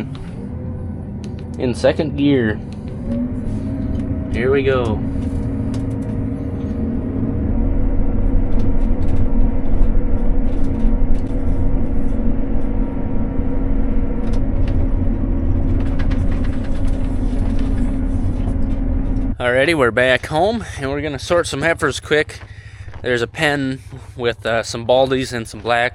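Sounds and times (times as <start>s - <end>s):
combine harvester engine drone: 0.0s - 25.9s.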